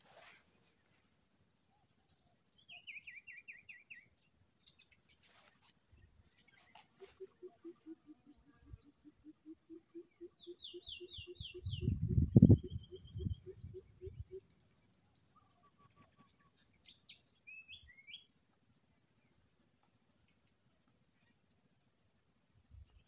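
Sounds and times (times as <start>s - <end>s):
bird trill: 6.7s - 14.7s
bird calling low repeated note: 7.0s - 14.5s.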